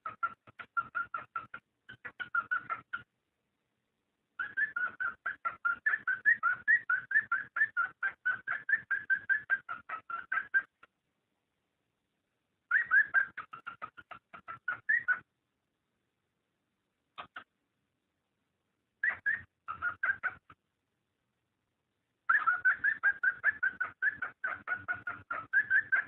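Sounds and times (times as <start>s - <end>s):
cockatiel chirping: 0.0s - 3.1s, 4.4s - 10.9s, 12.7s - 15.3s, 17.2s - 17.5s, 19.0s - 20.6s, 22.3s - 26.0s.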